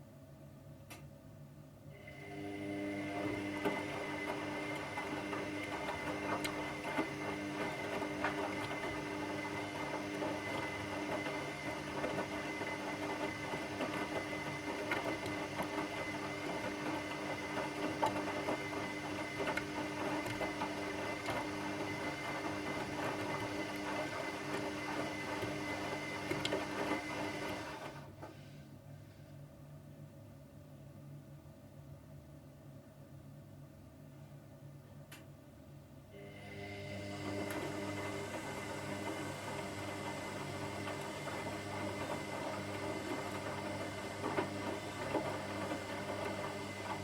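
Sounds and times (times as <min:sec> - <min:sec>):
washing machine running: 0:01.9 - 0:28.4, 0:36.1 - 0:47.0.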